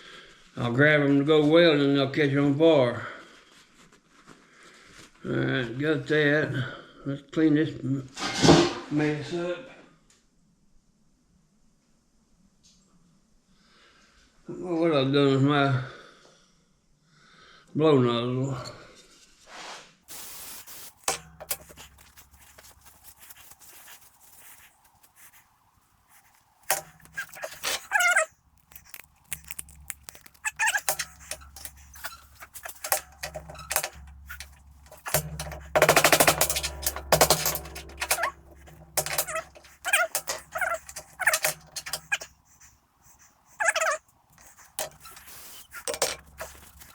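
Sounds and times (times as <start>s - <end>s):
spray hiss: 20.1s - 21.4s
light clicks and clatter: 20.1s - 46.9s
rapid rattling: 20.1s - 46.9s
short animal calls: 27.0s - 28.3s, 42.0s - 46.4s.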